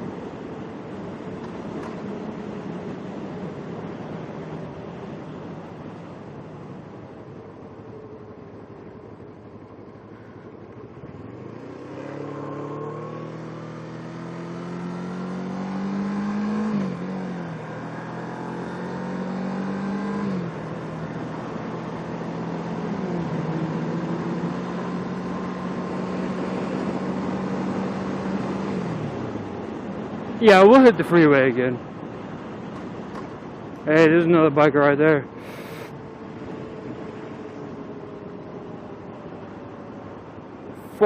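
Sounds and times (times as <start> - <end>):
wind and road noise: 0.0 - 41.0
motorcycle engine accelerating: 10.9 - 29.6.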